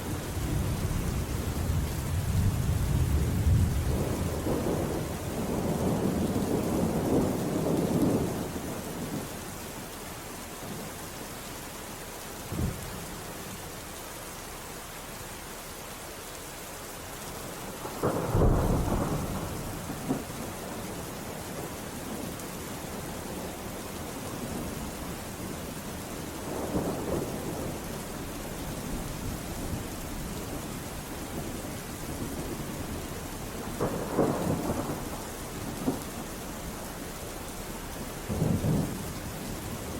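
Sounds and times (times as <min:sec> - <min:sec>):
steady rainfall: 0:00.0 - 0:39.9
thunder rumbling: 0:00.3 - 0:09.3, 0:17.7 - 0:22.3, 0:22.9 - 0:39.9.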